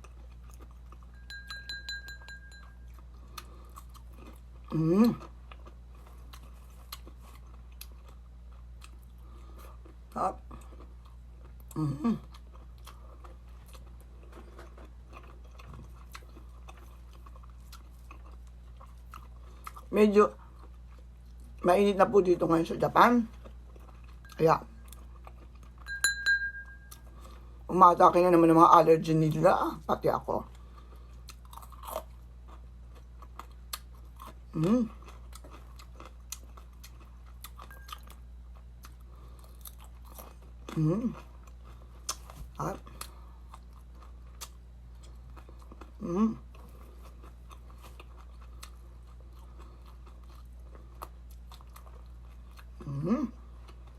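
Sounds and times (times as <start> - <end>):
chewing food: 0.0 - 21.7, 23.0 - 27.7, 30.4 - 53.9
steady low hum: 0.0 - 53.9
person humming: 4.7 - 5.2, 11.8 - 12.2, 34.5 - 34.9, 40.7 - 41.2, 46.0 - 46.5, 52.8 - 53.4.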